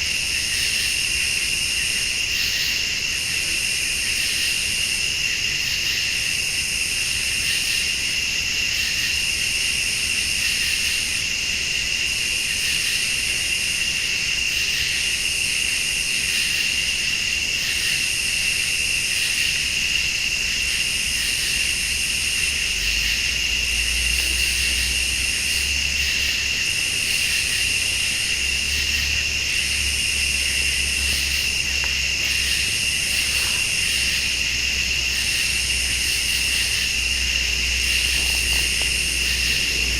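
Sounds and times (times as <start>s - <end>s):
crickets trilling: 0.0s - 39.9s
pulsing insect buzz: 19.1s - 39.9s
low rumble: 36.9s - 39.9s.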